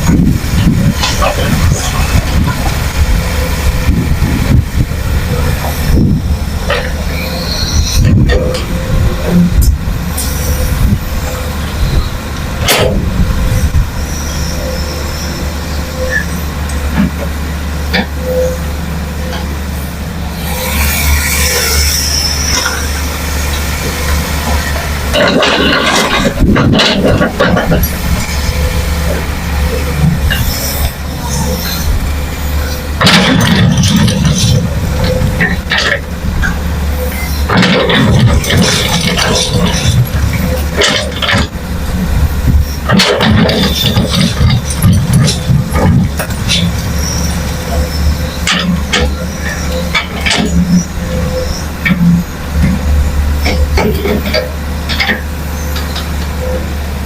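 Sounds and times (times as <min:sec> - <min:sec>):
diesel machinery engine drone: 0:00.0 - 0:57.0
metal knocks and clanks: 0:24.5 - 0:31.6, 0:33.0 - 0:36.6, 0:37.5 - 0:41.6, 0:42.8 - 0:55.2.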